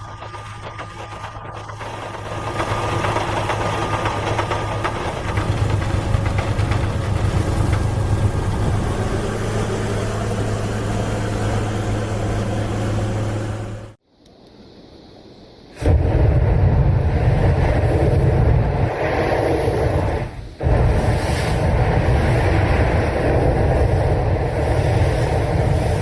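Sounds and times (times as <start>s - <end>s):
heavy machinery engine humming: 0.0s - 14.0s, 19.6s - 26.0s.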